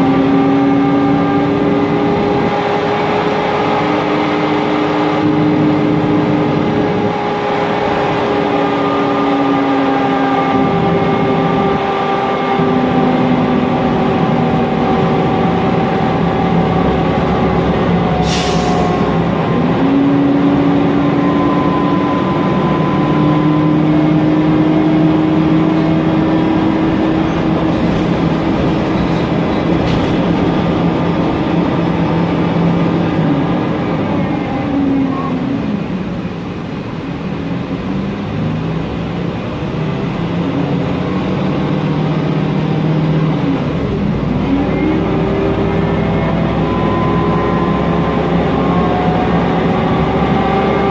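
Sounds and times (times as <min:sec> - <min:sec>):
bus engine and transmission whining: 0:00.0 - 0:50.9
short hiss: 0:18.2 - 0:19.0.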